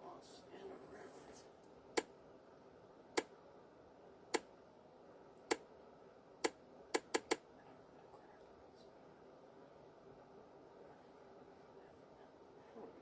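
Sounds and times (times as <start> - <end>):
sharp dry clicks: 6.4 - 7.4.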